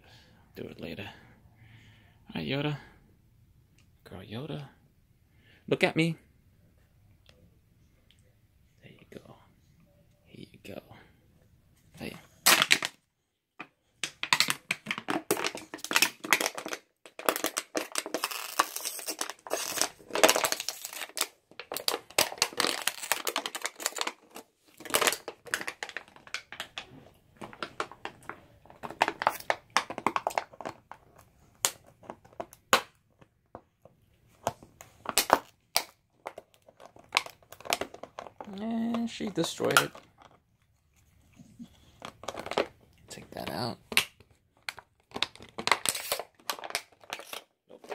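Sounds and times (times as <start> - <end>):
dog chewing plastic bottle: 14.0 - 32.9, 34.4 - 40.5, 41.3 - 42.9, 43.9 - 47.9.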